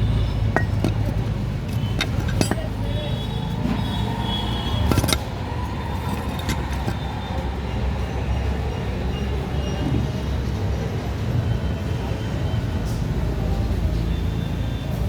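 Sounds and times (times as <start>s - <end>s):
vehicle engine rumble: 0.0s - 15.0s
sharp metallic clank: 0.5s - 3.0s.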